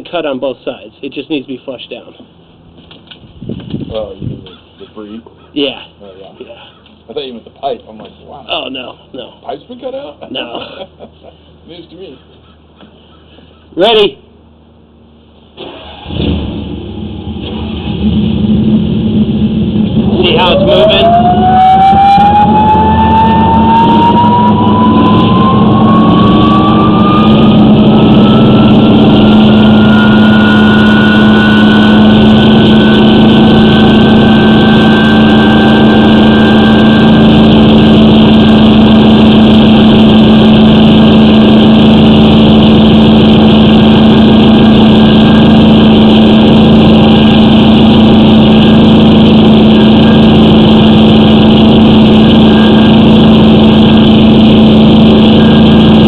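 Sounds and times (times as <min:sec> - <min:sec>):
engine hum: 0:00.0 - 0:56.0
high-pressure pump whine: 0:15.6 - 0:56.0.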